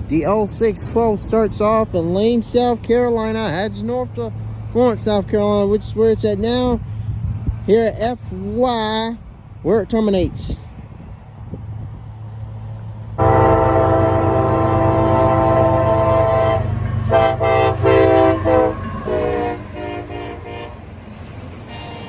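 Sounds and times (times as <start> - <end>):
low engine rumble: 0.0 - 22.0
locomotive horn blasts: 13.2 - 20.9, 21.7 - 22.0.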